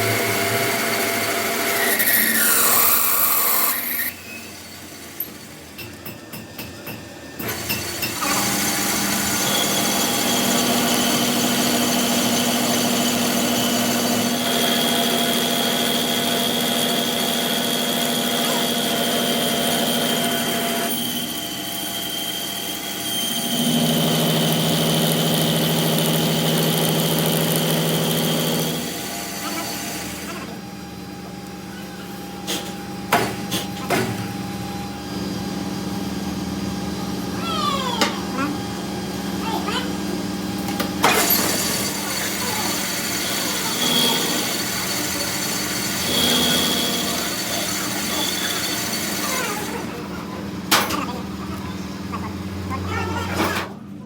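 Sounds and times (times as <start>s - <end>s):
power tool motor whining: 7.4s - 30.5s, 41.0s - 50.0s.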